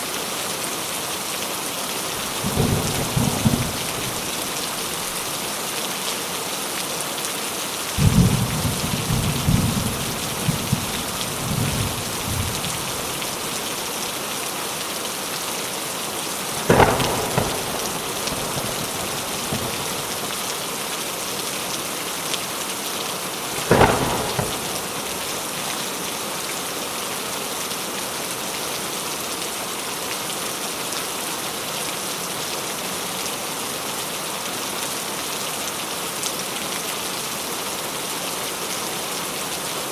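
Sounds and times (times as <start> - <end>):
heavy rain falling: 0.0 - 39.9
rolling thunder rumble: 2.1 - 5.3, 8.0 - 13.9, 16.6 - 20.6, 23.4 - 25.7
sharp thunder cracks: 2.2 - 5.3, 8.0 - 13.9, 16.6 - 20.6, 23.4 - 25.7.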